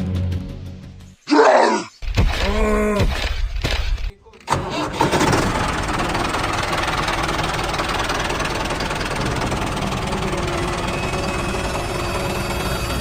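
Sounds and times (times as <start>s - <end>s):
tractor engine knocking: 4.5s - 12.7s.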